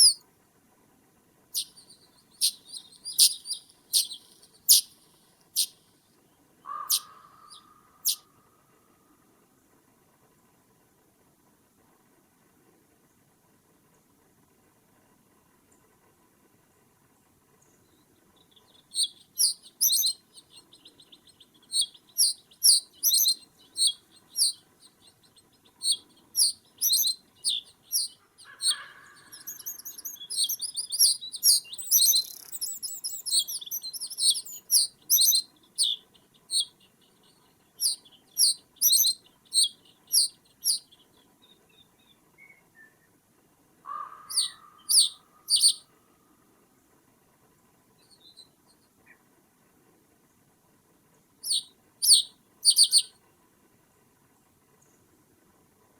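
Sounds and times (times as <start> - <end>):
small birds chirping: 0.0 - 0.2, 1.5 - 5.8, 6.6 - 8.4, 17.6 - 43.2, 43.9 - 45.9, 48.0 - 49.3, 51.4 - 53.2.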